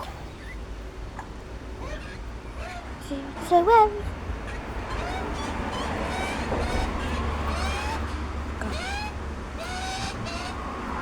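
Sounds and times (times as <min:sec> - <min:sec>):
young birds chirping: 0:00.0 - 0:11.0.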